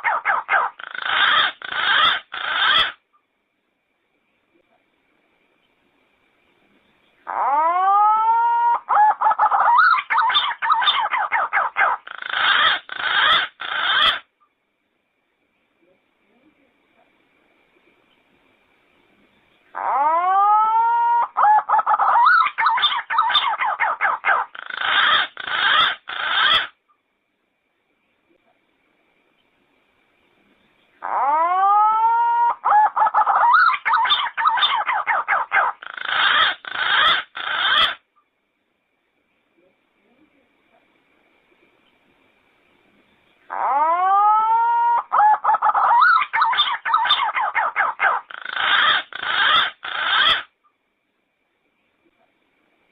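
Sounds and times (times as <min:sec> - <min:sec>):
pigeon singing: 0:00.0 - 0:03.0, 0:07.2 - 0:14.3, 0:19.7 - 0:26.8, 0:31.0 - 0:38.0, 0:43.5 - 0:50.5
pigeon warbling whistled call: 0:43.5 - 0:50.5.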